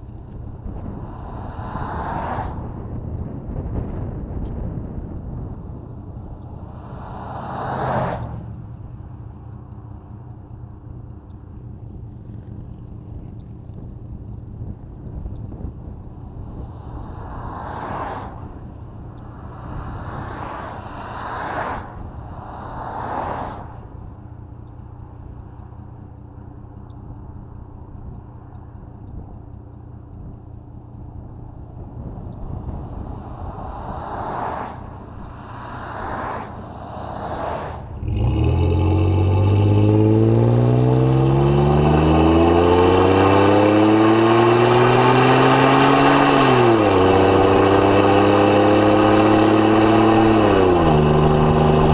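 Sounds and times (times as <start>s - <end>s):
car engine and exhaust: 0.0s - 51.9s
passing whooshes: 39.8s - 51.9s.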